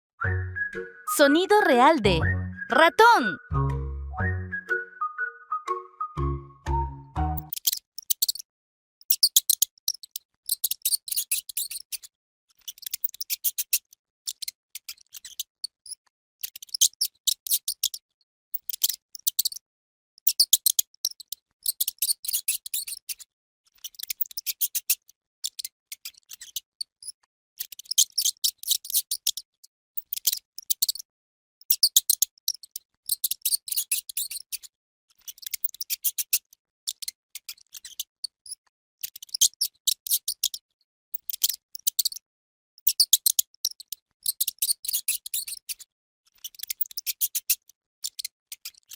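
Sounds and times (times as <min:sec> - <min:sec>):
mouse squeaking: 0:31.7 - 0:34.6.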